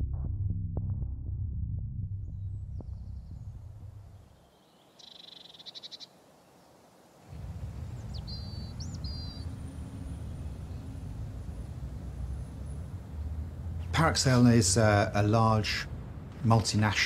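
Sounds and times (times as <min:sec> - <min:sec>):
low steady rumble: 0:00.0 - 0:04.4, 0:07.3 - 0:17.0
high bird chirps: 0:04.2 - 0:06.2, 0:07.9 - 0:11.0
rapid high bird trill: 0:04.4 - 0:06.2, 0:08.0 - 0:11.0
low drone: 0:07.3 - 0:16.5.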